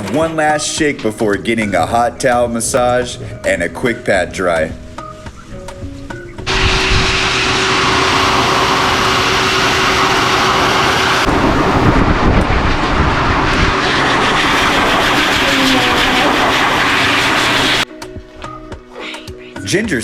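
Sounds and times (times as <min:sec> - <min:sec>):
pet dryer blowing air with whine: 0:06.5 - 0:17.8.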